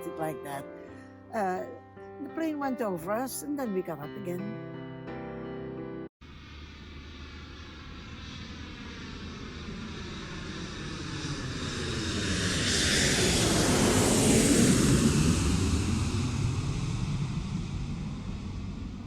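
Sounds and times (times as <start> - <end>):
airplane engine passing overhead: 6.2 - 19.0.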